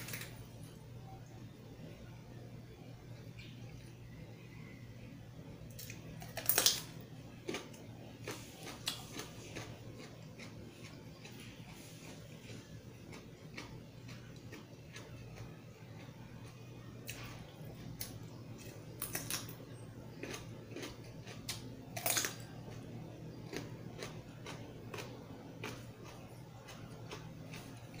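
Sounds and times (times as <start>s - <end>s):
low steady hum: 0.0s - 28.0s
crisp crunching bites: 5.8s - 11.4s, 17.9s - 19.6s, 20.2s - 22.8s
close-up chewing: 7.4s - 28.0s.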